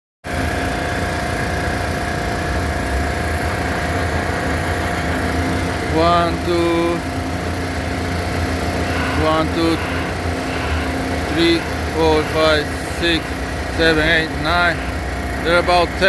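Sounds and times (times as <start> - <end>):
construction machinery engine: 0.3 - 16.0
person speaking: 5.9 - 7.1, 8.8 - 16.0.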